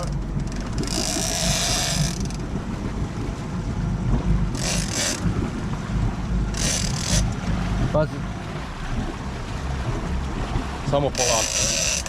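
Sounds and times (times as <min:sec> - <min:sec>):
fishing reel drag buzzing: 0:00.0 - 0:02.4, 0:04.6 - 0:05.3, 0:06.5 - 0:07.4, 0:11.2 - 0:12.0
boat engine hum: 0:00.0 - 0:12.0.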